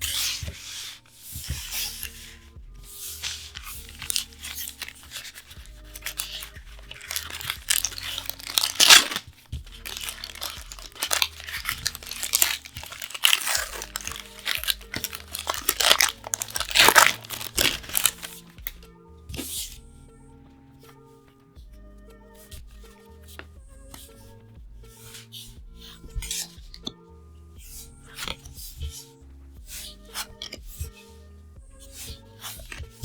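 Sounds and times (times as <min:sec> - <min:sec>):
packaging being torn and crinkled: 0:03.2 - 0:18.8.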